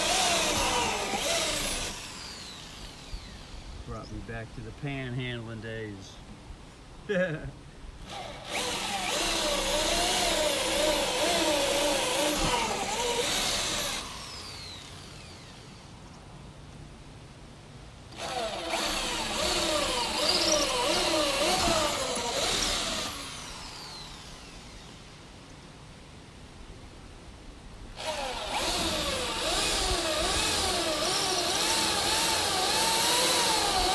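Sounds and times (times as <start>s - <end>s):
power drill running: 0.0s - 3.8s, 8.0s - 16.0s, 18.1s - 25.1s, 28.0s - 33.9s
falling motor whine: 0.0s - 4.0s, 8.0s - 16.0s, 18.1s - 25.1s, 28.0s - 33.9s.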